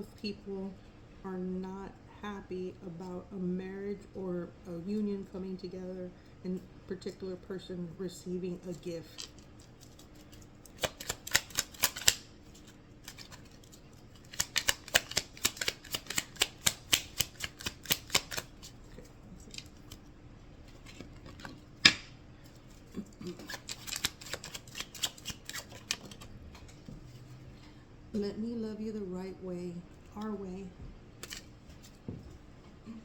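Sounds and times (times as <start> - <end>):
cards being shuffled: 9.0 - 20.0, 20.6 - 27.2, 31.2 - 32.0.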